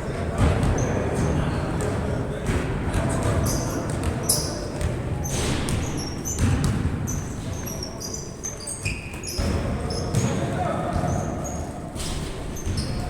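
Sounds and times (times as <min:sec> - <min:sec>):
sneaker squeaks on floor: 0:03.3 - 0:13.0
basketball bouncing: 0:05.6 - 0:07.2, 0:09.4 - 0:11.2.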